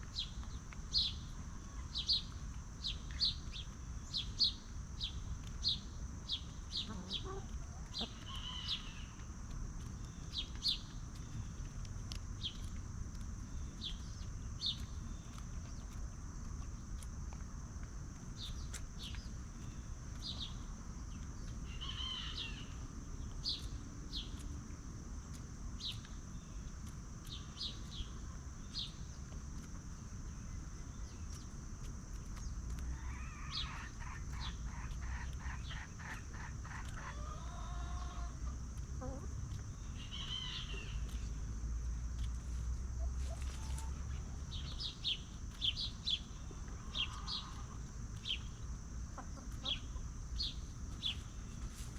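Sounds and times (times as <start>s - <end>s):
chickens clucking: 6.4s - 13.2s, 31.3s - 41.4s, 42.2s - 51.9s.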